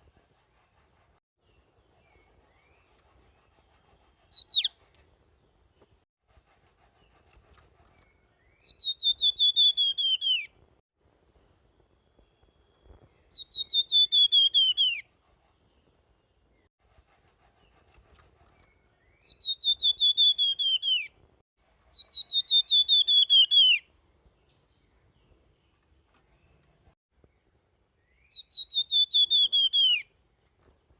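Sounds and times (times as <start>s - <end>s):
songbird whistling song: 1.5s - 5.0s, 7.9s - 10.6s, 11.2s - 15.1s, 18.4s - 21.2s, 21.9s - 25.8s, 28.0s - 30.3s.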